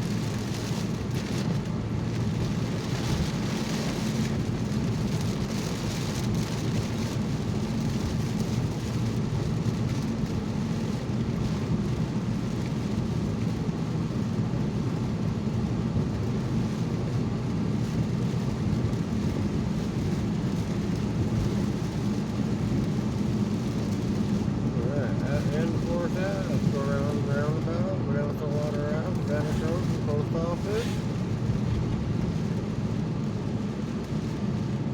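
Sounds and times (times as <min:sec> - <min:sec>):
rain on car: 0:00.0 - 0:34.9
tyres on wet road: 0:00.0 - 0:34.9
car engine: 0:15.4 - 0:34.8.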